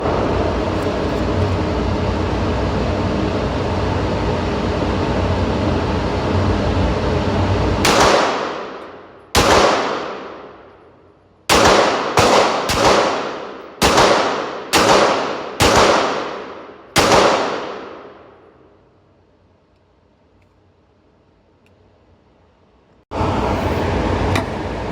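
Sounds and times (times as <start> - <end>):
echoing gunshots: 7.8 - 10.9, 11.5 - 18.7.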